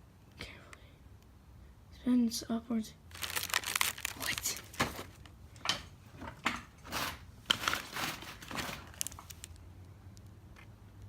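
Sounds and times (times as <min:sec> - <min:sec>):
packaging rustling: 0:03.1 - 0:05.3, 0:06.9 - 0:09.6.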